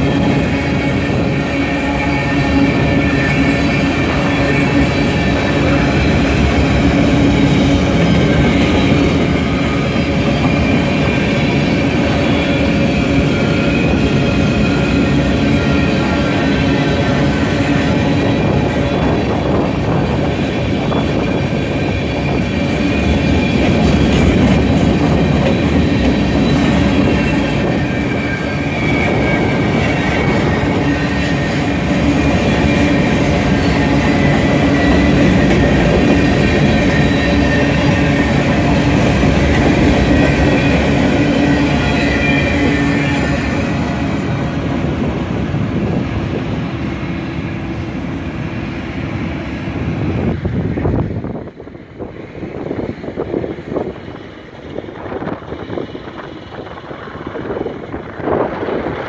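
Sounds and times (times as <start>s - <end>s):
freight train wheels clattering: 0.0s - 46.4s
faint high wheel squeal: 25.5s - 45.0s.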